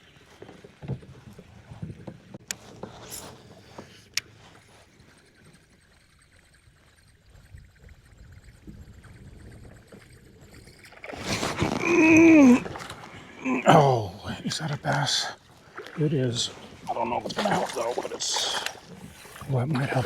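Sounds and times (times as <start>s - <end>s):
water lapping and gurgling: 0.0s - 20.0s
fish splashing: 4.7s - 13.6s, 14.9s - 20.0s.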